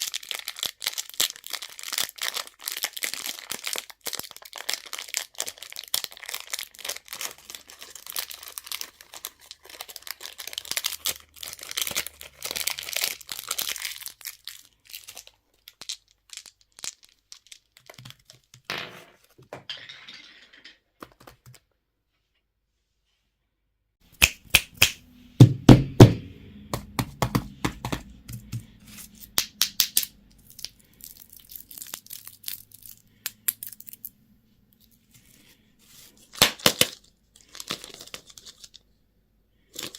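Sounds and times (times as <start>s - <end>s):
plastic packaging crinkling: 0.0s - 18.6s, 30.4s - 34.1s, 36.0s - 38.8s.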